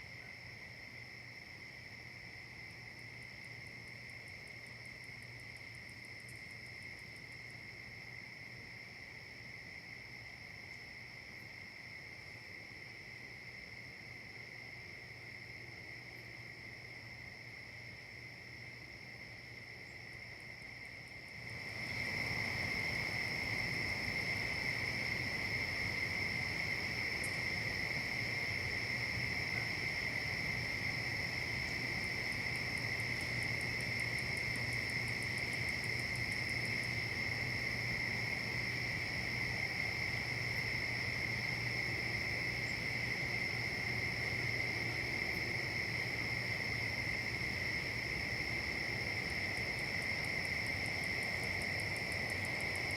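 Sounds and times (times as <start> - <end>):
insects trilling: 0.0 - 52.9.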